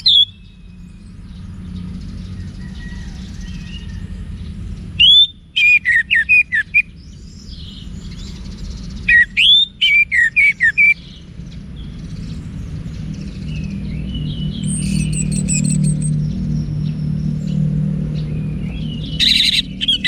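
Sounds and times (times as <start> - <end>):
thrush singing: 14.4 - 16.2.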